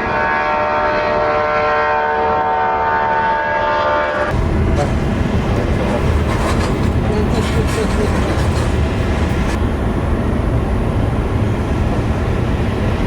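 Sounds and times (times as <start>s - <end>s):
jet engines whining: 4.3s - 13.0s
low rumbling noise: 4.3s - 13.0s.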